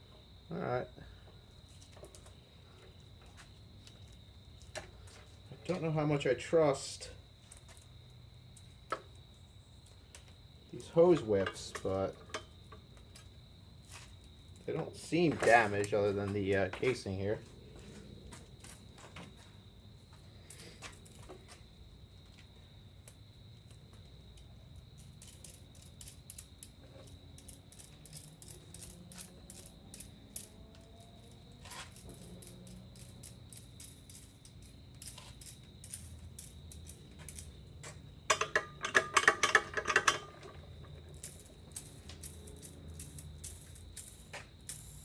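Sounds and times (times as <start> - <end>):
tools clicking and knocking: 11.2 - 13.3, 25.0 - 45.0
metallic clinking and jangling: 24.8 - 45.0.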